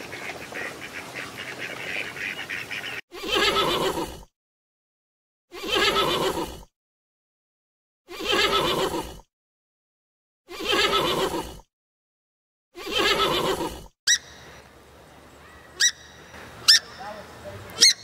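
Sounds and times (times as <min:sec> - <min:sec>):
outdoor background noise: 0:00.0 - 0:04.2, 0:12.8 - 0:18.0
animal call: 0:02.0 - 0:04.3, 0:05.5 - 0:06.6, 0:08.1 - 0:09.2, 0:10.5 - 0:11.6, 0:12.8 - 0:14.7, 0:15.3 - 0:18.0.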